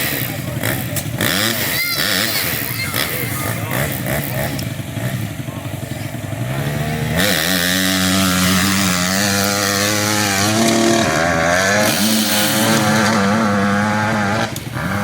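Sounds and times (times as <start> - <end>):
dirt bike engine revving hard: 0.0 - 15.0.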